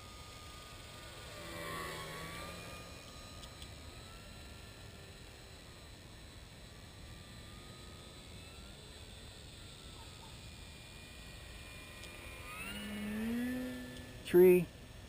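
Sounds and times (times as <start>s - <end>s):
faint electric motor whine: 0.0s - 15.0s
tone rising in pitch: 11.1s - 14.2s.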